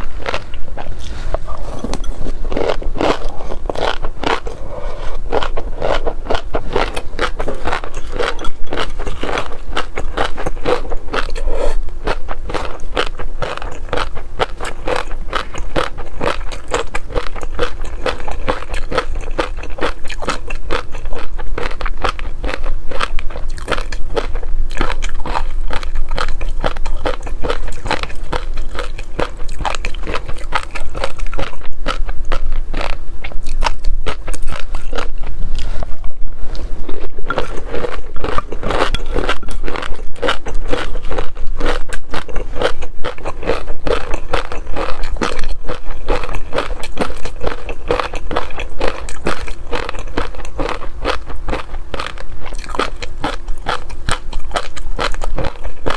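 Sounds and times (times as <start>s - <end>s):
person chewing crunchy food: 0.0s - 55.9s.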